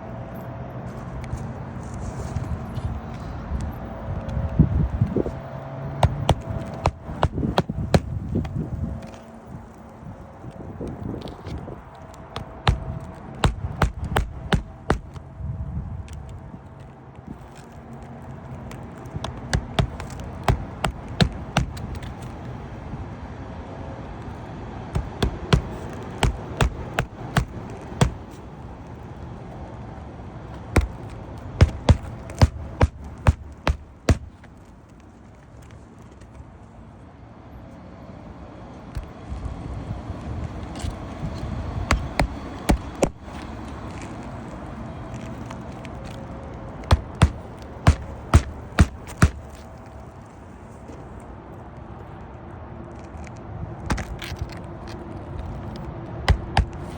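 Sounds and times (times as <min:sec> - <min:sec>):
sharp knocks: 0:06.0 - 0:08.6, 0:12.4 - 0:15.2, 0:19.2 - 0:22.2, 0:25.0 - 0:28.4, 0:30.8 - 0:34.5, 0:41.9 - 0:43.3, 0:46.8 - 0:49.6, 0:56.3 - 0:56.9.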